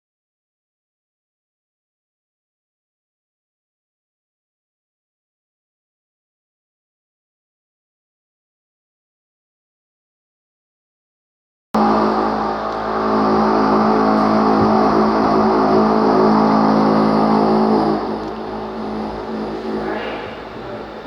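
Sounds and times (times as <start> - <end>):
machine engine running: 11.8 - 21.0.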